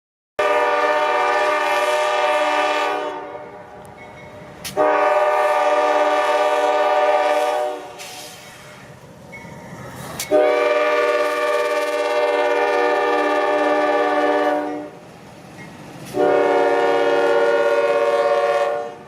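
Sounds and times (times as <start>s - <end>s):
locomotive air horn blasts: 0.4s - 3.7s, 4.7s - 8.4s, 10.3s - 15.0s, 16.1s - 19.0s
low rumble of train: 0.4s - 19.0s.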